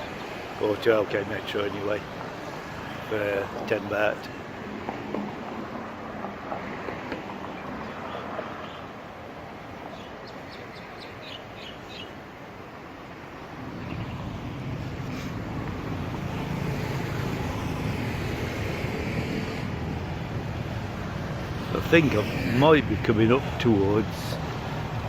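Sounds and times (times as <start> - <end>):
bird chirping: 7.4 - 8.9, 9.9 - 12.2, 13.7 - 15.3.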